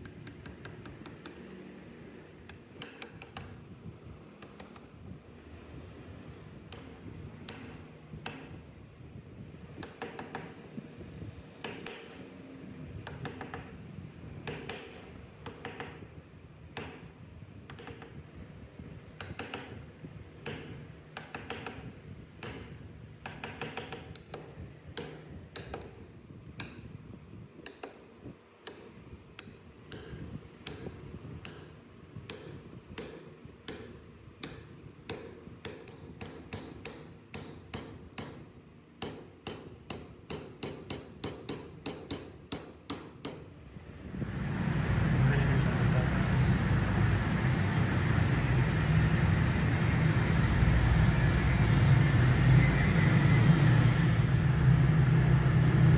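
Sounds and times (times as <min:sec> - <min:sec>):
carving tool tapping wood: 0:00.0 - 0:01.5, 0:02.4 - 0:03.6, 0:04.4 - 0:05.0, 0:06.6 - 0:08.6, 0:09.7 - 0:10.6, 0:11.6 - 0:12.2, 0:13.0 - 0:13.8, 0:14.4 - 0:16.1, 0:16.7 - 0:17.1, 0:17.7 - 0:18.2, 0:19.1 - 0:26.8, 0:27.6 - 0:43.5, 0:44.2 - 0:55.9
steady low hum: 0:43.8 - 0:55.9.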